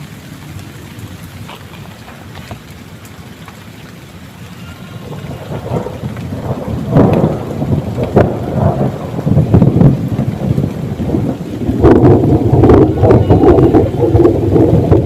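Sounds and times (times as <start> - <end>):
heavy rain falling: 0.0 - 15.0
thunder rumbling and cracking: 4.9 - 15.0.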